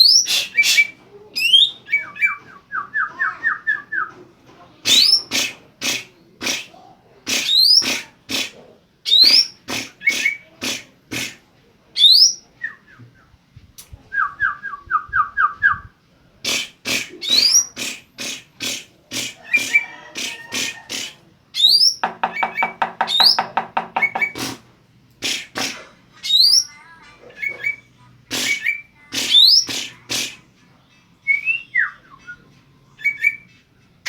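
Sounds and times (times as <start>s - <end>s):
bird singing rapid whistled song: 21.6s - 22.0s, 26.3s - 26.8s.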